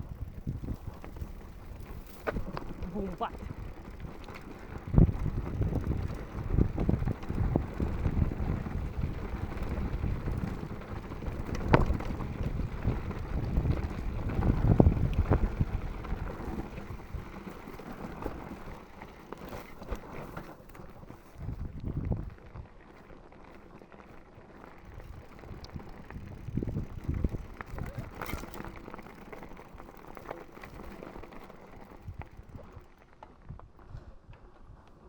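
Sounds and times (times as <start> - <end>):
wind buffeting microphone: 0.0 - 18.8, 21.3 - 22.7, 24.8 - 29.2
bike clattering over rocky trail: 0.0 - 22.2, 22.9 - 34.6.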